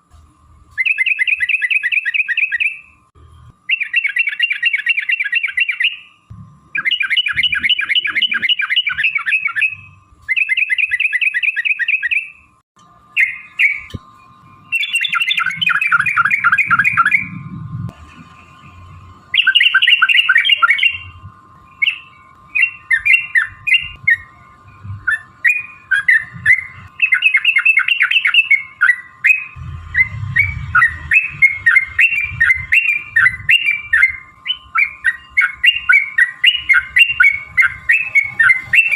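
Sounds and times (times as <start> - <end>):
bulbuls calling in rolling chatter: 14.7 - 17.4, 18.1 - 38.9.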